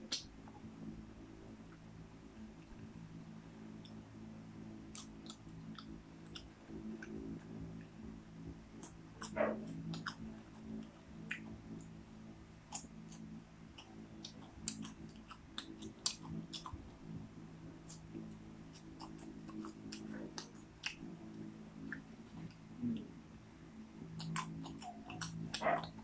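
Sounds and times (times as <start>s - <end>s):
popcorn being chewed: 0.0s - 26.0s
steady low hum: 0.0s - 26.0s.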